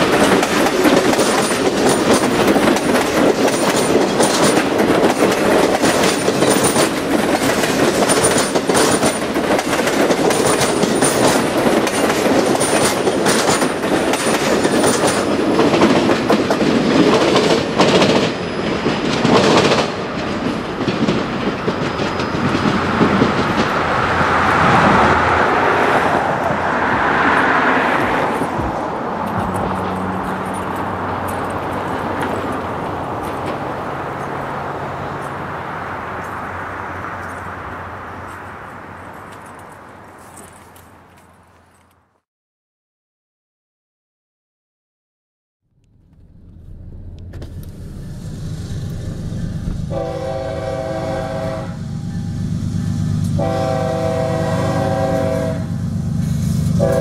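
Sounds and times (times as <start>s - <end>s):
train wheels clicking over rail joints: 0.0s - 24.9s, 26.4s - 35.5s
train rushing rumble: 0.0s - 41.5s, 45.8s - 57.0s.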